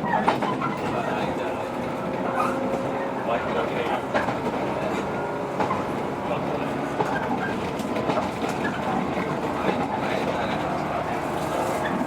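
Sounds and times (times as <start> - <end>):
train running noise: 0.0 - 12.0
wheels clicking over rail joints: 3.5 - 12.0.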